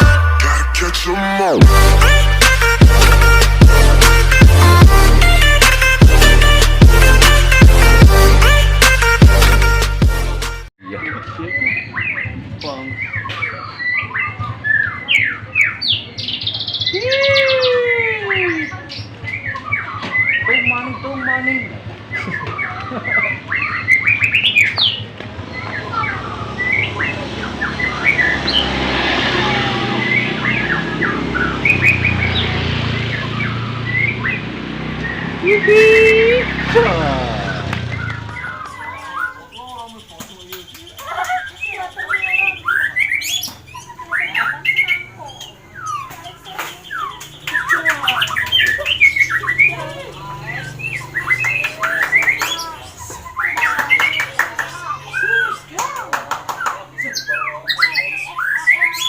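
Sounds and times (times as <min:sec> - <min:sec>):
bird singing whistled notes: 0:10.8 - 0:28.7, 0:29.9 - 0:36.7, 0:37.5 - 0:54.3, 0:57.0 - 0:59.0.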